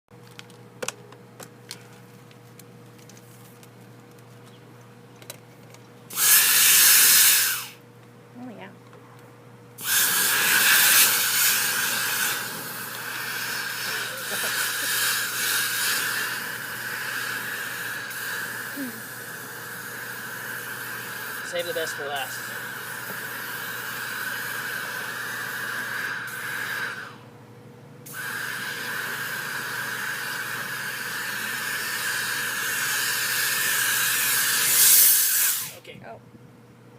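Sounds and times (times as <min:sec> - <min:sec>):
hissing rush of air: 0:06.1 - 0:07.8, 0:09.8 - 0:27.2, 0:28.1 - 0:35.8
rushing air hiss: 0:06.2 - 0:07.8, 0:09.8 - 0:19.1, 0:34.0 - 0:35.8.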